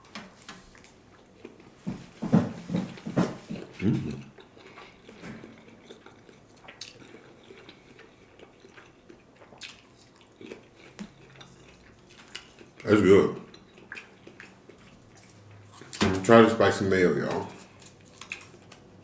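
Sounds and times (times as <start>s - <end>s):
chewing sushi: 3.6s - 16.0s, 17.6s - 19.0s.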